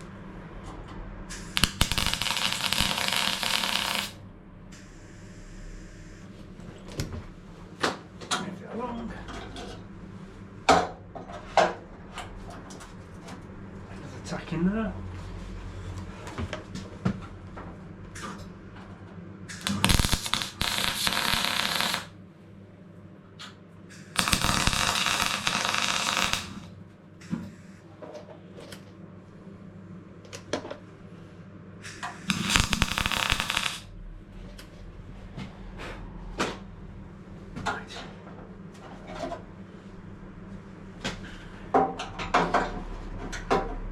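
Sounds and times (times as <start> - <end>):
welder crackling: 1.3 - 4.2, 19.5 - 22.2, 24.2 - 26.8, 31.9 - 33.9.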